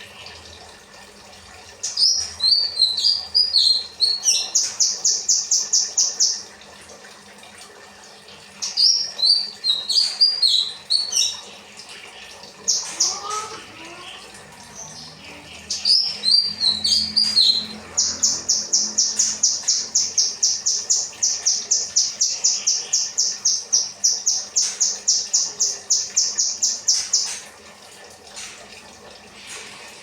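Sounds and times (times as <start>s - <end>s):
bird warbling: 12.6s - 27.5s.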